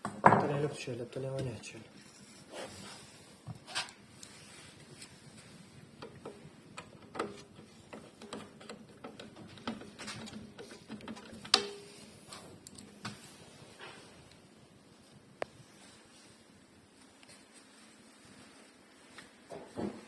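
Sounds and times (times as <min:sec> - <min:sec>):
tools and parts clicking: 0:06.0 - 0:11.8.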